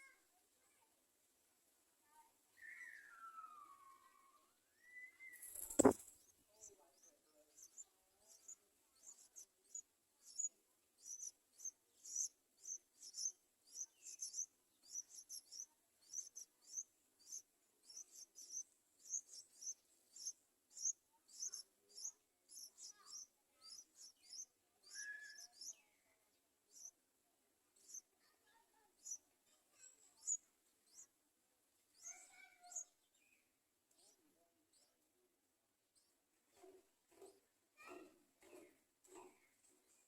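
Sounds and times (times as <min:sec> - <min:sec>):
nestlings chirping: 0:04.8 - 0:06.3, 0:06.9 - 0:25.7, 0:26.7 - 0:27.0, 0:27.8 - 0:28.1, 0:29.0 - 0:29.2.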